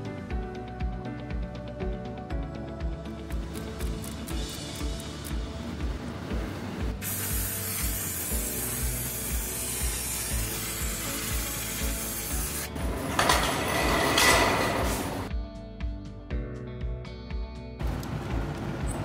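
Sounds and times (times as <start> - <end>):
music with a steady beat: 0.0 - 17.8
steady hiss: 6.9 - 12.8.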